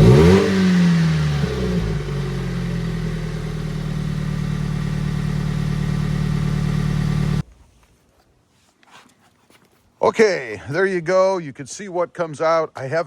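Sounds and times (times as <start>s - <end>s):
car exhaust idling: 0.0s - 7.4s.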